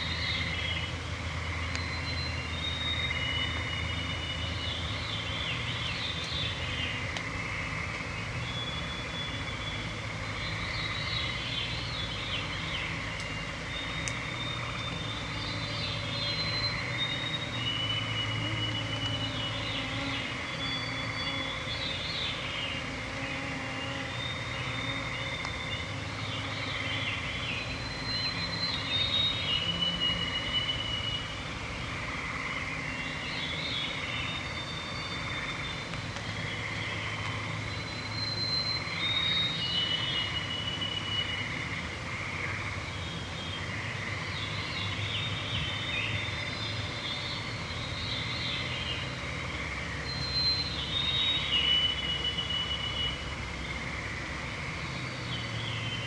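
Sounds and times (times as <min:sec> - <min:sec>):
songbirds whistling songs: 0:00.0 - 0:07.0, 0:08.2 - 0:31.4, 0:33.0 - 0:41.7, 0:44.4 - 0:53.8
frogs trilling: 0:00.0 - 0:56.0
mosquitoes humming: 0:10.2 - 0:35.6.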